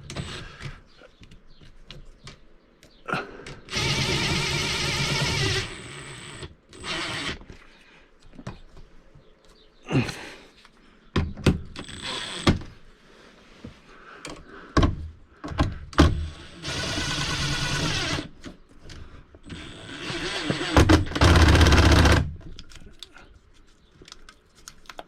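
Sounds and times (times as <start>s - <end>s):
power driver running bolts: 19.5s - 22.3s.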